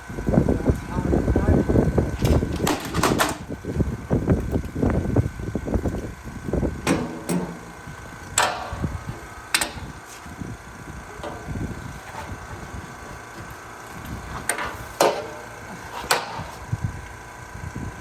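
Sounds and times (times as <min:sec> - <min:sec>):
sharp metallic clanks: 0:06.8 - 0:07.8, 0:08.4 - 0:09.9.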